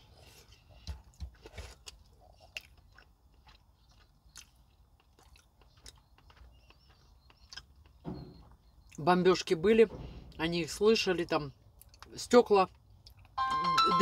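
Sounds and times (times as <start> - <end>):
wet chewing smacks and clicks: 0.8 - 8.0, 11.8 - 13.4.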